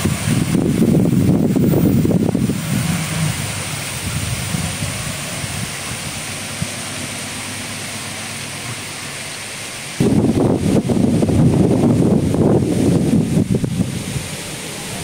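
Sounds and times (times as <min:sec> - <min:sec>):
train carriages rolling on rails: 0:00.0 - 0:10.2.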